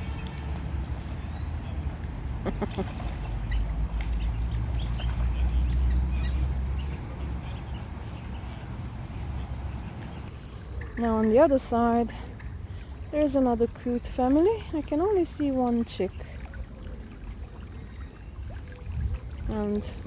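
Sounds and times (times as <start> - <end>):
waterfowl calling: 2.4 - 4.2.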